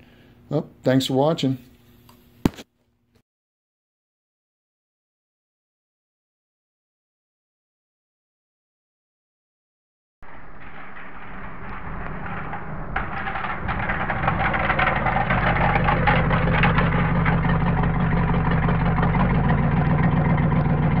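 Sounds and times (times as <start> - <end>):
rapid crackle: 10.2 - 20.8
car engine running: 10.3 - 21.0.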